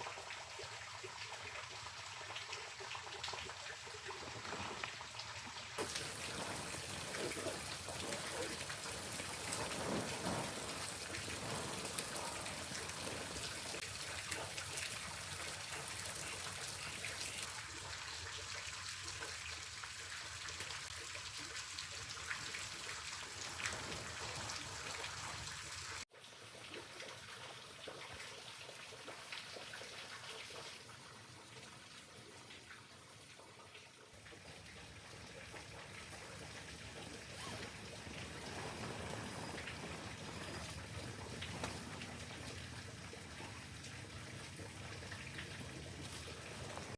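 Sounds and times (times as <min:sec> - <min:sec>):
water pattering: 0:05.8 - 0:17.5, 0:34.2 - 0:46.9
water dripping: 0:05.8 - 0:26.0, 0:34.2 - 0:46.9.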